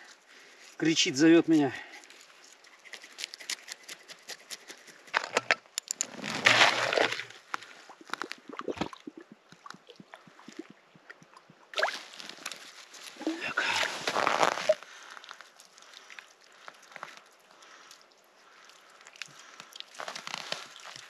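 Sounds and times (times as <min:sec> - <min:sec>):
knife scraping fish: 0:02.7 - 0:05.2
water sloshing: 0:06.1 - 0:14.8.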